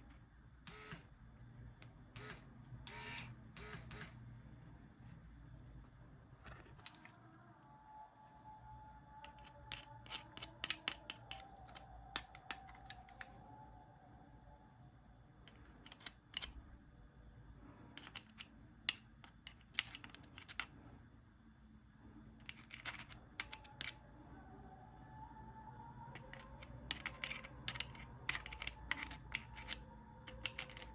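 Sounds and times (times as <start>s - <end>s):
small parts clicking and tapping: 1.8s - 4.2s, 9.2s - 13.4s, 15.5s - 16.6s, 17.9s - 20.7s, 22.4s - 24.0s, 26.2s - 30.9s.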